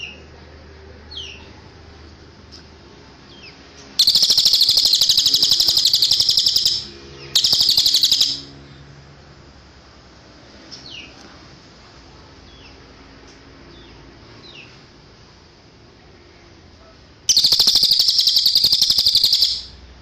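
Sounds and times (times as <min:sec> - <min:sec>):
songbird rapid trills: 0:04.0 - 0:08.6, 0:17.3 - 0:19.8.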